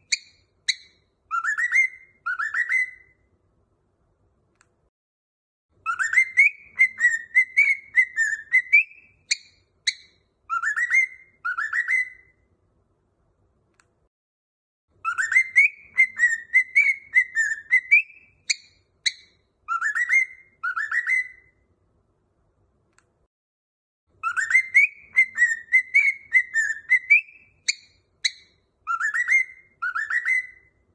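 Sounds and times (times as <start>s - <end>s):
cockatiel whistling a tune: 0.0s - 3.2s, 5.8s - 12.4s, 15.0s - 21.6s, 24.2s - 30.9s.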